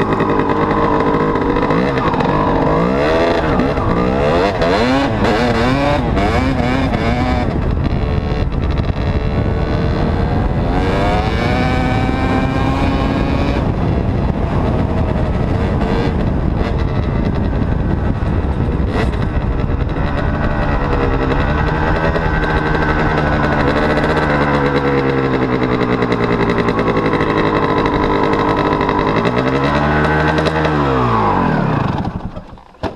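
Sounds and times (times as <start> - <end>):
dirt bike engine revving: 0.0 - 32.9.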